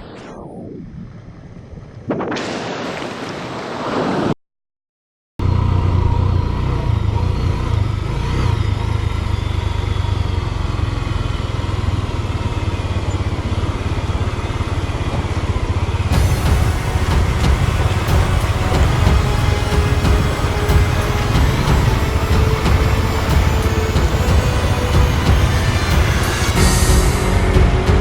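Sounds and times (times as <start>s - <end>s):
motorcycle engine running: 5.4s - 19.4s
rushing stream or wind: 13.5s - 28.0s.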